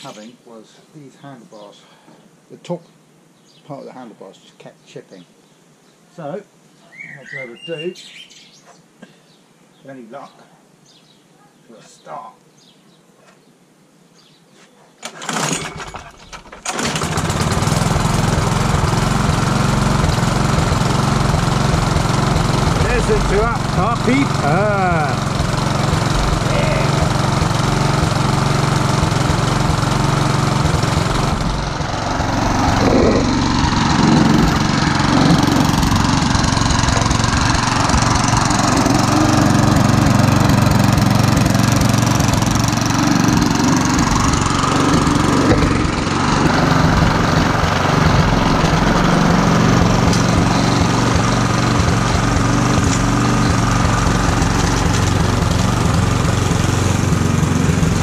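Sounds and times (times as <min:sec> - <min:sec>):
lawn mower engine running: 0:15.0 - 0:58.0.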